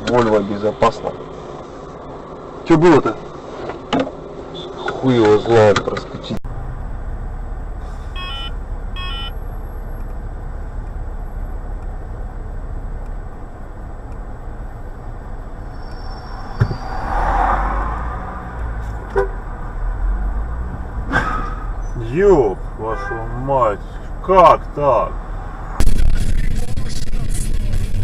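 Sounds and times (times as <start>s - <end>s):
car road and engine noise: 0.0s - 28.0s
car horn toots: 22.8s - 23.6s.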